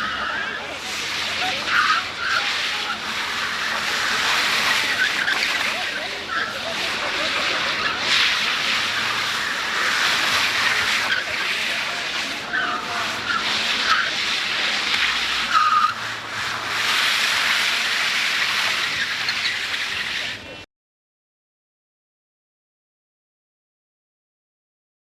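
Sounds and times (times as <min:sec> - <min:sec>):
car tyres screeching: 0:00.0 - 0:20.6.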